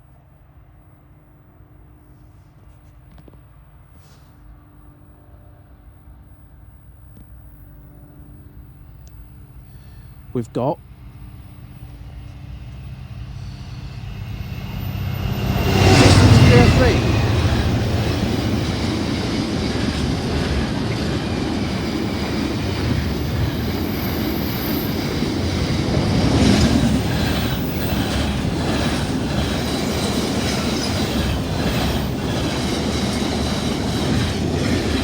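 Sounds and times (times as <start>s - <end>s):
freight train wheels rumbling on rail: 8.0s - 35.0s
wheels clicking over rail joints: 15.9s - 35.0s.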